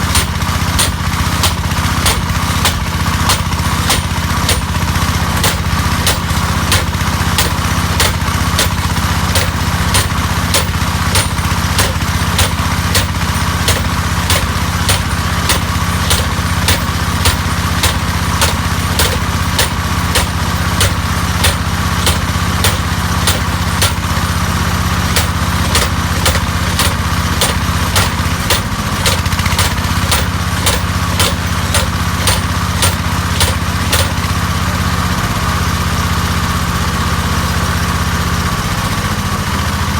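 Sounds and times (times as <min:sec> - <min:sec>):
hammer drill knocks: 0:00.1 - 0:04.8, 0:05.4 - 0:34.3.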